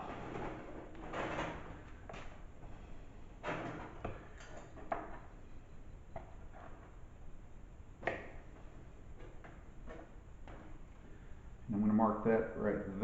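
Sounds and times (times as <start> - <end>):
sheet metal clicks and scrapes: 0.0 - 2.4.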